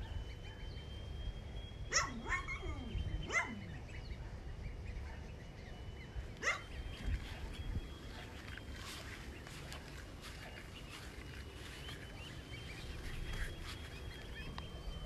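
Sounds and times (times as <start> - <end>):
low outdoor rumble: 0.0 - 15.0
dog-like animal yelps: 1.9 - 3.7, 6.4 - 6.8.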